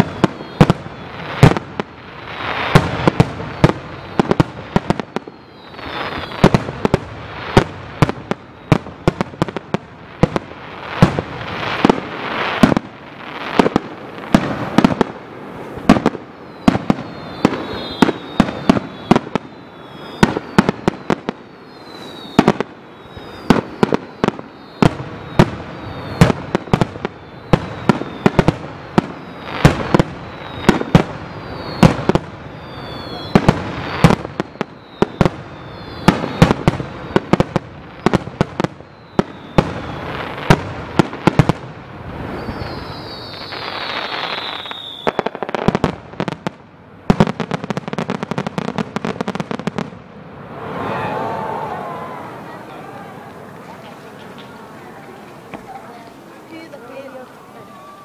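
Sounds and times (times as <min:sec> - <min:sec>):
high falling whistles: 0:00.0 - 0:01.4, 0:05.0 - 0:06.5, 0:16.3 - 0:28.4, 0:29.1 - 0:37.3, 0:38.8 - 0:40.5, 0:42.2 - 0:45.4, 0:50.4 - 0:54.6
crackling hiss: 0:00.0 - 0:58.0.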